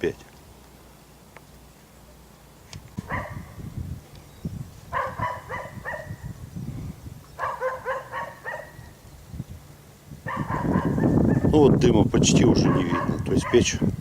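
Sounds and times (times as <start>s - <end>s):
dog barking: 3.0s - 3.6s, 4.9s - 6.2s, 7.4s - 8.9s, 10.3s - 11.5s, 12.6s - 13.8s.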